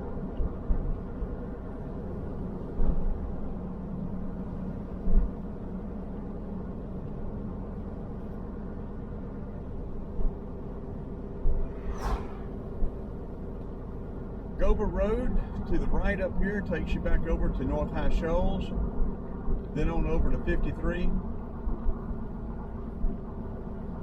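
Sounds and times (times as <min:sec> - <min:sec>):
road and engine noise: 0:00.0 - 0:24.0
short sharp sound: 0:11.6 - 0:13.0.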